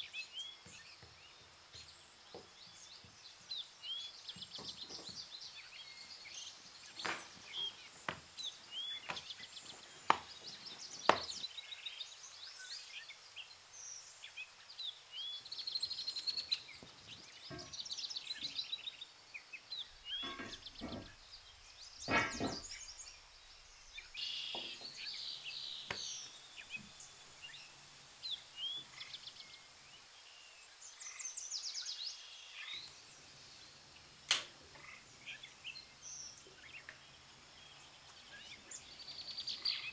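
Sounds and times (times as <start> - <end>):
small birds chirping: 0.0 - 39.9
iron griddle knocks: 7.0 - 8.3, 17.5 - 17.8, 20.0 - 23.1, 24.5 - 25.1
dough knocking on wooden table: 11.0 - 11.3, 20.2 - 21.1, 22.1 - 22.8.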